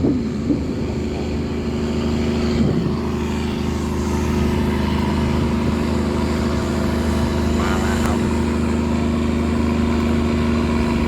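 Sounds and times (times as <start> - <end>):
tugboat engine running: 0.0 - 11.0.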